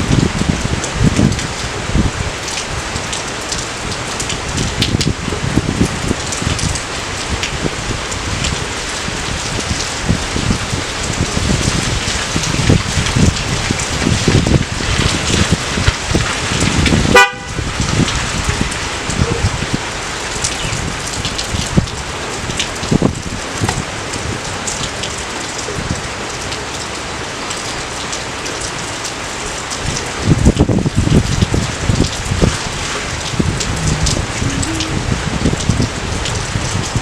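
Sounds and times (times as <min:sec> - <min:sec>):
heavy rain spatters: 0:00.0 - 0:37.0
steady rain: 0:00.0 - 0:37.0
honk-like tonal blip: 0:17.2 - 0:17.6, 0:33.8 - 0:35.6.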